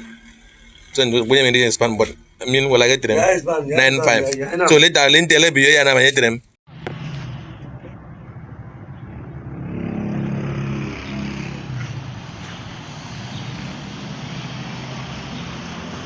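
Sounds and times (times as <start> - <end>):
engine running: 6.7 - 16.0.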